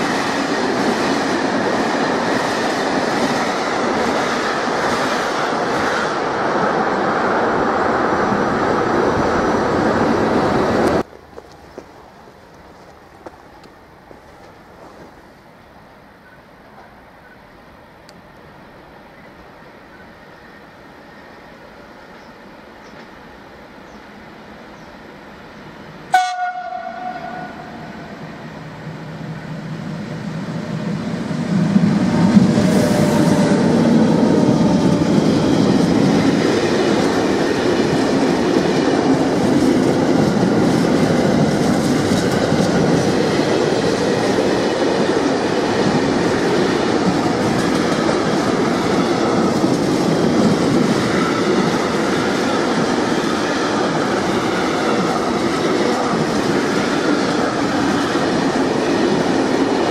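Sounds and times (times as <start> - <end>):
freight train rumble: 0.0 - 59.9
locomotive horn blast: 26.1 - 28.1.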